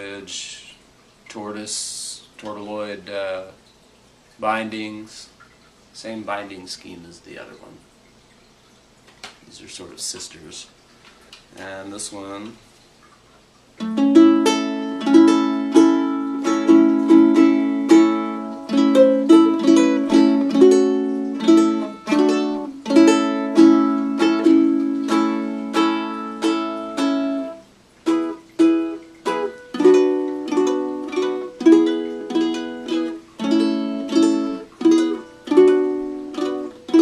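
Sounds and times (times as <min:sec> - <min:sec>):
ukulele strumming chords: 0:13.8 - 0:37.0.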